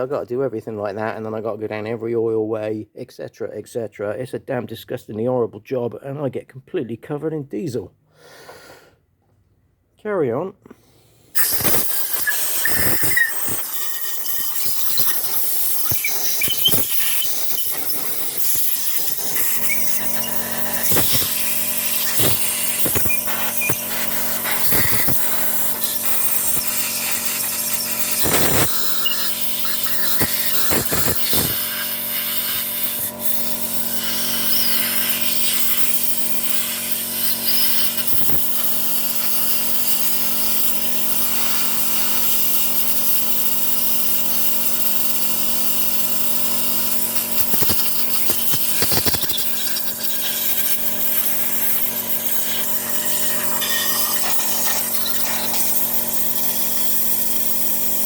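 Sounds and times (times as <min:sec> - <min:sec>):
air blow gun hissing: 0:11.3 - 0:58.0
steady hum: 0:11.4 - 0:41.8, 0:45.0 - 0:58.0.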